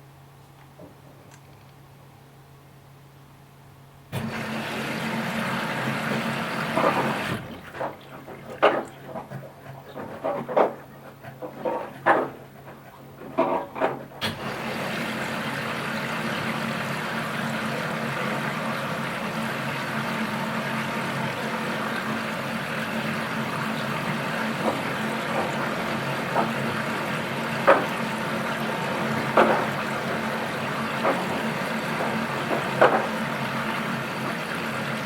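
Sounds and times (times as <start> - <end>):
washing machine filling with water: 4.1 - 35.0
knocks or splashes: 23.2 - 34.4.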